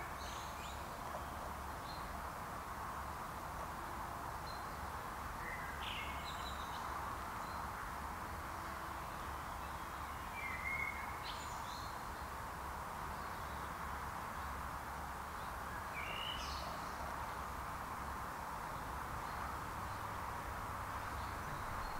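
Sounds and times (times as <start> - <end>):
low woodland hiss: 0.0 - 21.9
bird calls and chirps: 21.0 - 21.9.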